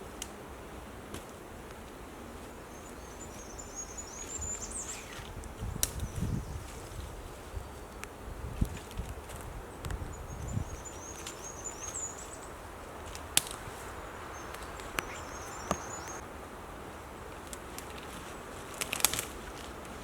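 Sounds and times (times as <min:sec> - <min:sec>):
small bird twittering: 0:02.7 - 0:05.3, 0:10.1 - 0:12.5, 0:14.3 - 0:16.2.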